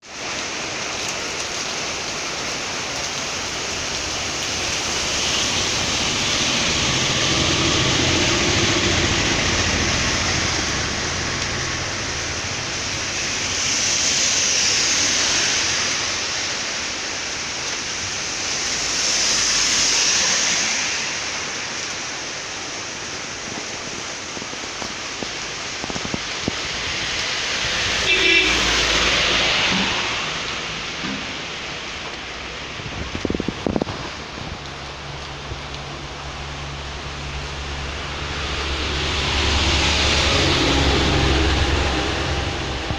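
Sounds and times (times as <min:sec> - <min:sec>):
heavy rain on a road: 0:00.0 - 0:42.9.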